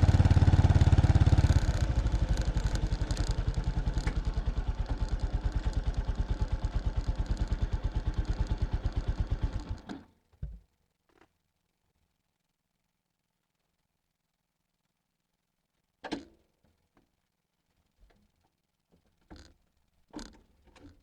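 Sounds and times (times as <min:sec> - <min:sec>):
motorcycle engine idling: 0:00.0 - 0:09.9.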